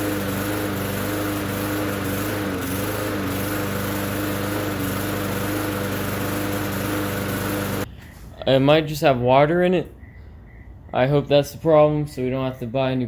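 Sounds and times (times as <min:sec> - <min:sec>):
push mower engine running: 0:00.0 - 0:07.9.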